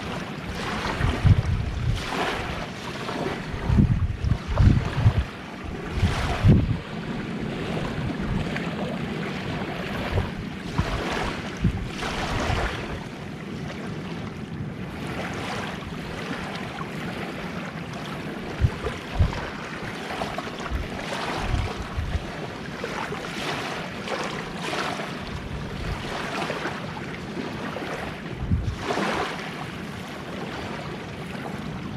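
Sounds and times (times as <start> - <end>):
sea waves washing ashore: 0.0 - 31.9
wind buffeting microphone: 0.0 - 31.9.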